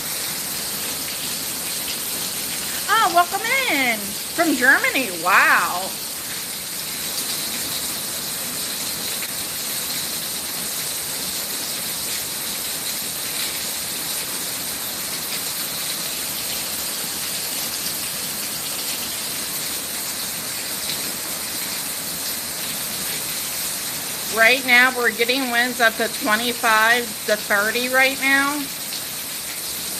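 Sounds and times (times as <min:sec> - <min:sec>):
heavy rain hissing: 0:02.3 - 0:06.8.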